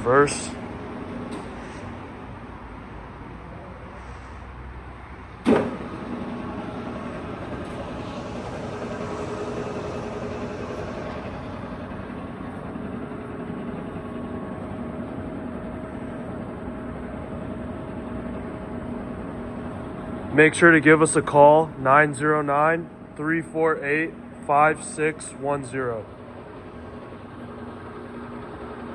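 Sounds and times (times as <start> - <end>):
lathe spindle gearing running: 0.0 - 3.8, 5.2 - 28.9
lathe drive engaging clunk: 0.5 - 2.1, 5.4 - 15.2.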